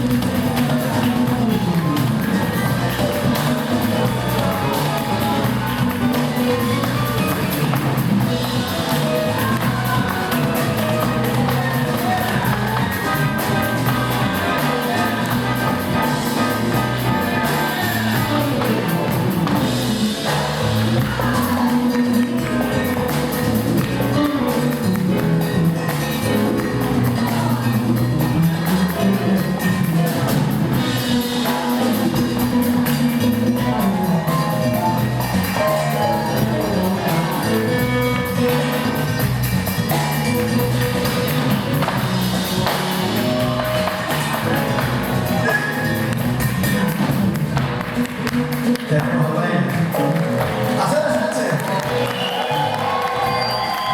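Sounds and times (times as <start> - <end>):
person singing: 0.0 - 39.2
bass: 0.0 - 53.9
fast percussion: 0.0 - 53.9
guitar: 0.0 - 53.9
live band music: 0.0 - 53.9.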